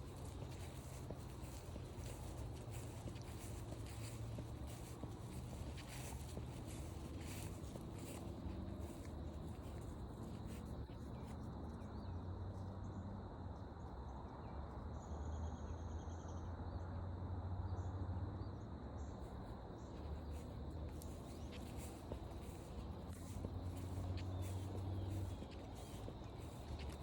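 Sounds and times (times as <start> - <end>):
faint footsteps: 0.0 - 11.4, 19.3 - 27.0.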